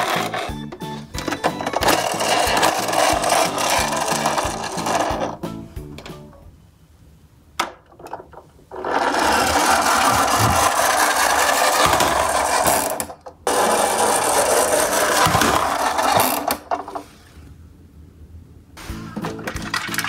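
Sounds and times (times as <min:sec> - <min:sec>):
toy friction motor whirring: 0:00.0 - 0:00.6, 0:01.2 - 0:05.4, 0:08.7 - 0:17.0.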